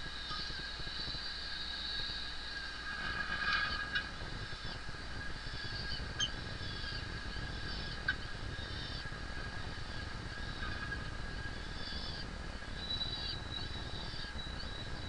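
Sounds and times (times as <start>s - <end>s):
falcons calling: 0.0s - 14.8s
steady low rumble: 0.0s - 15.0s.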